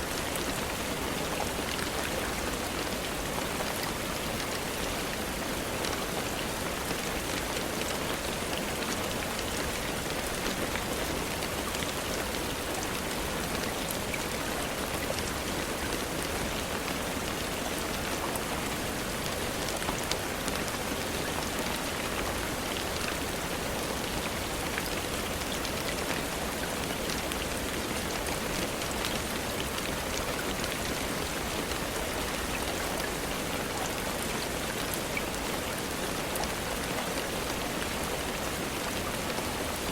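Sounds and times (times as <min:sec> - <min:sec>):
rain falling on a surface: 0:00.0 - 0:39.9.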